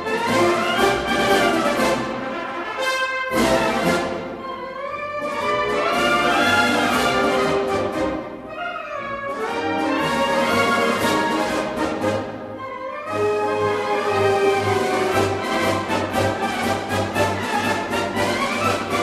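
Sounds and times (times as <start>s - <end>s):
orchestral brass chords: 0.0s - 19.0s.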